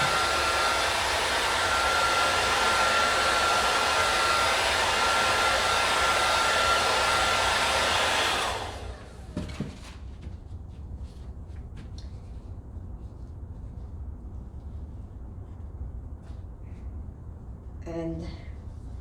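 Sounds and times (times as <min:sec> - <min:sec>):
hair dryer blowing with whine: 0:00.0 - 0:10.0.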